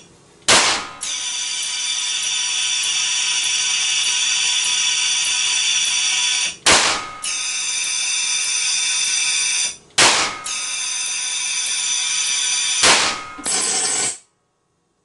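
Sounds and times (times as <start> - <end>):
high-pitched whine: 0.0 - 14.3
gas gun blasts: 0.5 - 1.2, 6.6 - 7.4, 10.0 - 10.6, 12.8 - 13.7.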